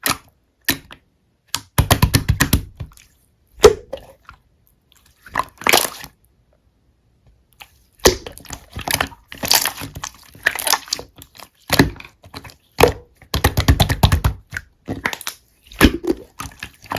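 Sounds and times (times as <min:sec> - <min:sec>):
slime clicking and popping: 0:08.0 - 0:11.1, 0:11.7 - 0:16.9.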